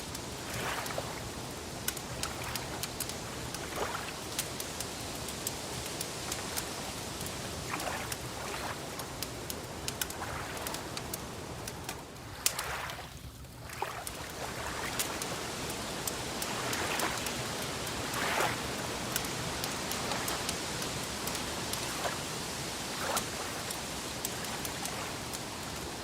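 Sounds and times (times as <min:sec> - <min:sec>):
wood fire crackling: 0:00.0 - 0:26.0
fire pops: 0:00.1 - 0:12.7.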